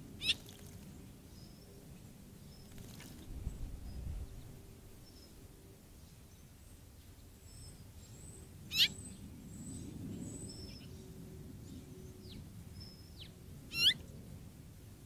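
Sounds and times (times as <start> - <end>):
faint birdsong: 0.0 - 15.0
loud sharp bird calls: 8.7 - 9.1, 13.7 - 14.0.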